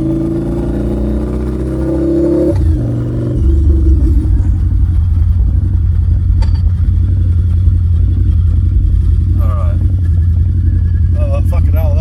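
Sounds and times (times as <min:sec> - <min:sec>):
motorbike engine running: 0:01.0 - 0:11.3
heavy low rumble: 0:02.5 - 0:12.0.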